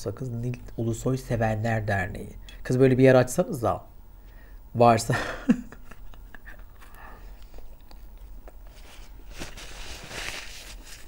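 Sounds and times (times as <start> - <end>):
chewing and wet mouth clicks: 6.8 - 8.7
paper napkin rustling: 8.7 - 11.0.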